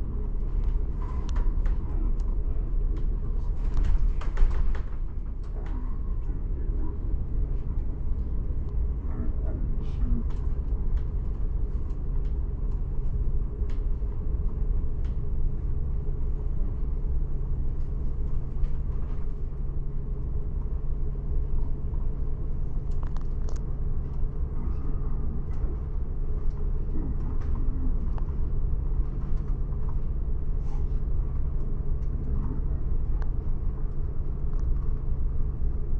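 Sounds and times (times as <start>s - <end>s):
faint hum: 0.0s - 35.9s
light rattles and clicks: 0.4s - 9.2s.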